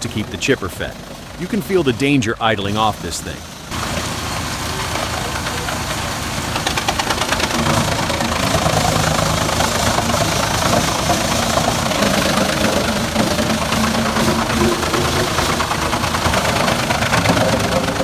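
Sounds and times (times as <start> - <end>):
engine running under load: 0.0 - 18.0
rapid clatter: 0.0 - 18.0.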